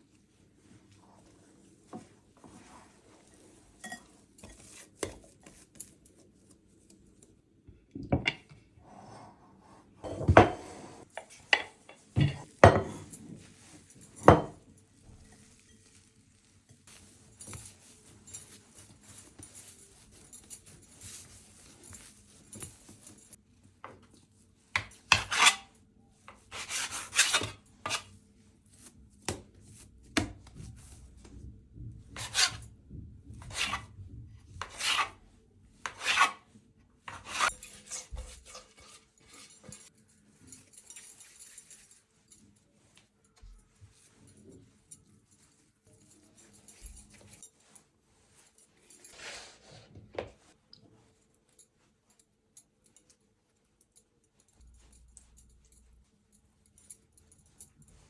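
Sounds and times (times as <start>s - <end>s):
hands kneading dough: 10.6s - 52.6s
dough squishing: 14.6s - 23.0s.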